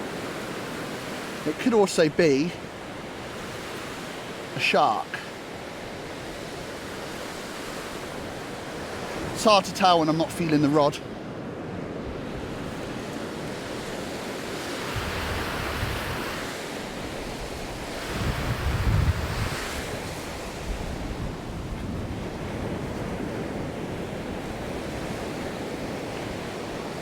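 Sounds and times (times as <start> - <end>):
surf breaking on a beach: 0.0 - 27.0
wind on the microphone: 14.8 - 16.5, 17.1 - 27.0.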